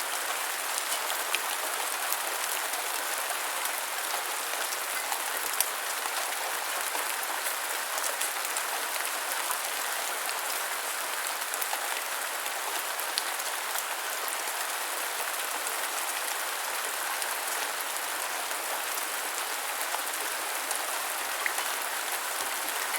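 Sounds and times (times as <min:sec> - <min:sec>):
gentle rain falling: 0:00.0 - 0:22.9
raindrops ticking on a surface: 0:00.3 - 0:10.5.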